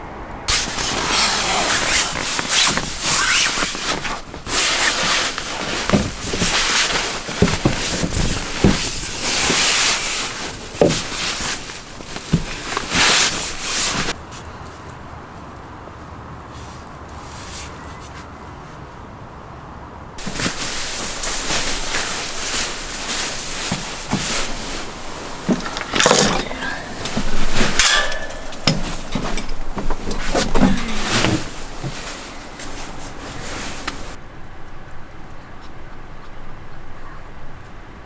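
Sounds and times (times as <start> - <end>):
sharp knocks and rattles: 20.2 - 34.2.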